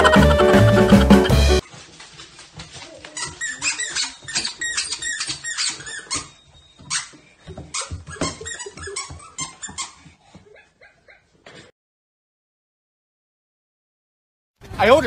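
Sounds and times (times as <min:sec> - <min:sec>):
squeaky toy squeaking: 0:03.1 - 0:10.1.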